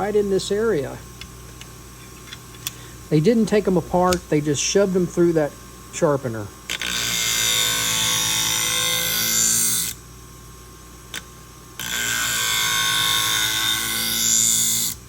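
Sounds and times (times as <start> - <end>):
scissor blade grinding on wheel: 6.7 - 10.0, 11.8 - 15.0.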